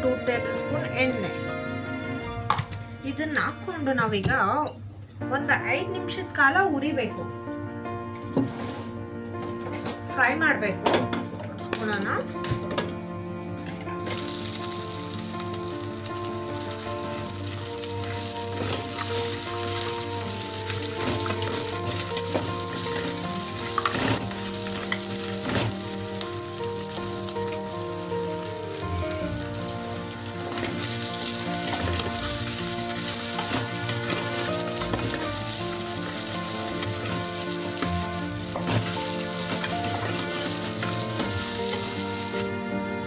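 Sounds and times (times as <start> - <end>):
background music: 0.0 - 43.0
food sizzling in oil: 14.0 - 43.0
wooden spatula stirring: 15.3 - 42.6.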